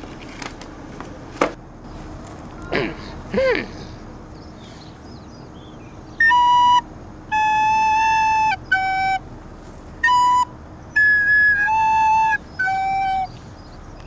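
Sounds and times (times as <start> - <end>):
whistle-like wind instrument notes: 6.2 - 9.2, 10.0 - 13.4.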